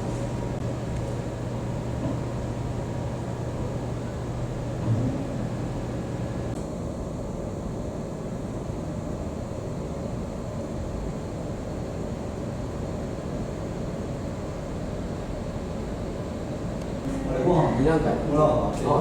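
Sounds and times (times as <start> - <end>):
noisy background: 0.0 - 9.5, 13.3 - 19.0
low machine hum: 0.0 - 19.0.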